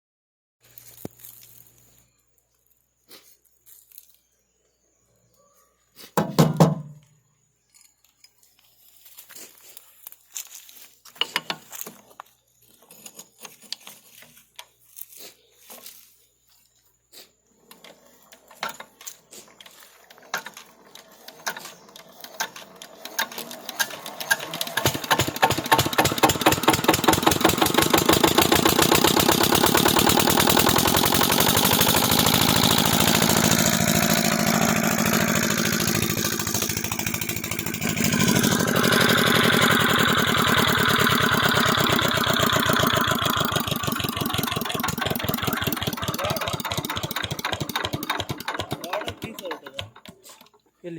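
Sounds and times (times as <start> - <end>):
diesel engine starting and running: 17.7 - 50.6.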